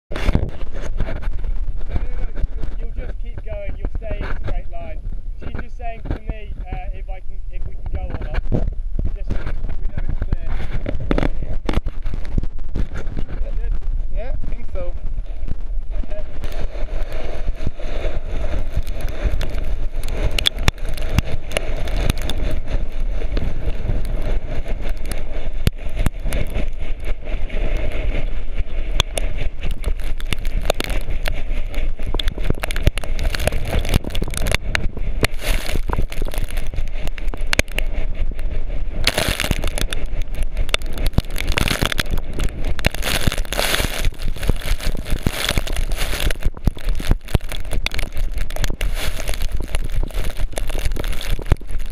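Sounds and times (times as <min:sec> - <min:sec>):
wind rumbling on microphone: 0:00.0 - 0:51.9
board scraping on gravel: 0:14.5 - 0:51.9.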